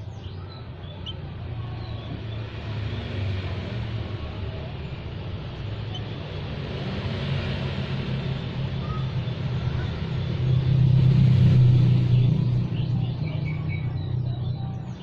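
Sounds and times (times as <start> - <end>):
low engine-like hum: 0.0 - 15.0.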